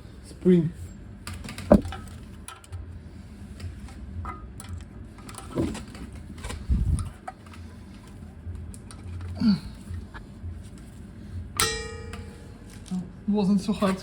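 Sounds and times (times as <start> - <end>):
metal clicks and knocks: 1.3 - 2.8
heavy thump: 1.7 - 2.0.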